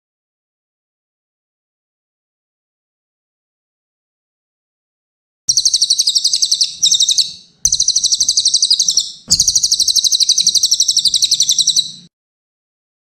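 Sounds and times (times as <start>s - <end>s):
songbird singing high trills: 5.5s - 12.1s.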